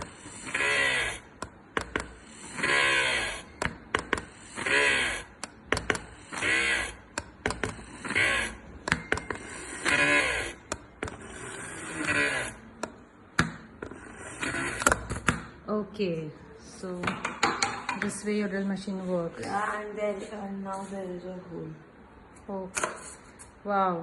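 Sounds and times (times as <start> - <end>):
drill motor whining: 0.0 - 1.4, 2.0 - 12.6.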